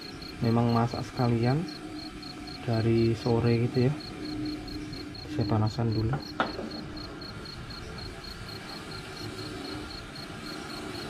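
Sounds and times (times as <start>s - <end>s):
cricket chirping: 0.0s - 11.0s
steady background hiss: 0.0s - 11.0s.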